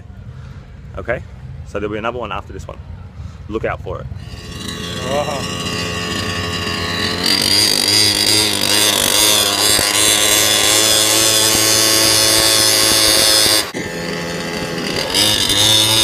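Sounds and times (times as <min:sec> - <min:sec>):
small engine running: 0:04.2 - 0:16.0.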